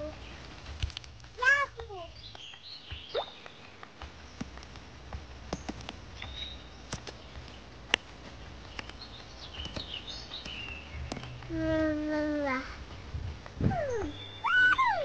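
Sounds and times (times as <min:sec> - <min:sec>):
small birds chirping: 0:00.0 - 0:15.0
sharp clicks and taps: 0:00.7 - 0:11.7.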